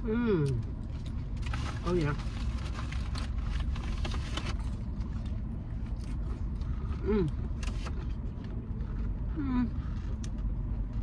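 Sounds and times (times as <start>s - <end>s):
car rumble: 0.0s - 11.0s.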